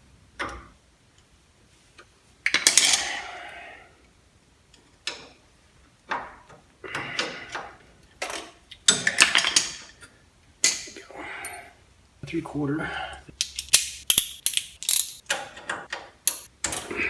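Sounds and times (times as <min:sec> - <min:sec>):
metal hand tools clinking: 0:13.3 - 0:15.2, 0:16.3 - 0:16.5.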